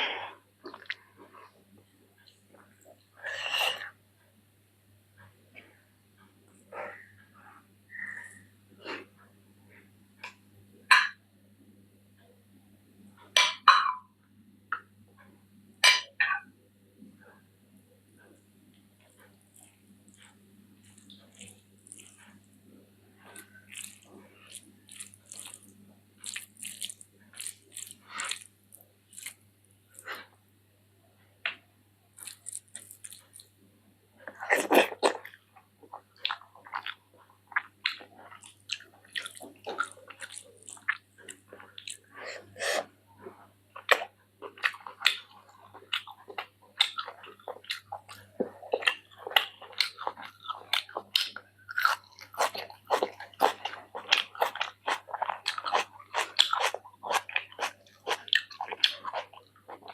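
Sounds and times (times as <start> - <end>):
chewing and biting: 19.0 - 22.5, 23.2 - 30.2, 32.2 - 33.5, 34.3 - 42.9, 43.8 - 59.9.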